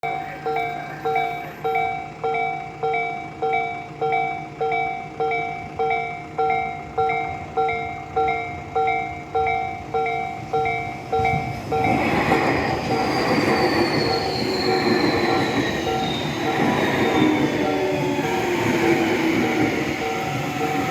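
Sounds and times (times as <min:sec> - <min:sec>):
train wheels rumbling: 0:00.1 - 0:20.9
electric train motor whine: 0:12.0 - 0:20.9.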